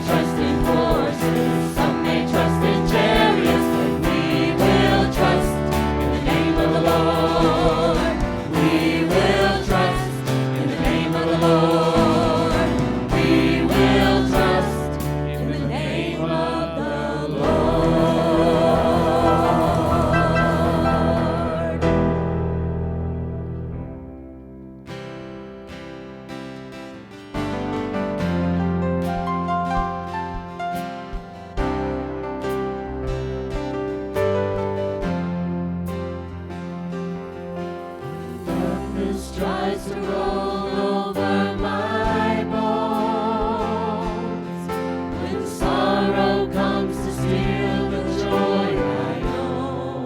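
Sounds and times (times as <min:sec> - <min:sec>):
worship band with singers: 0:00.0 - 0:22.6, 0:35.0 - 0:50.0.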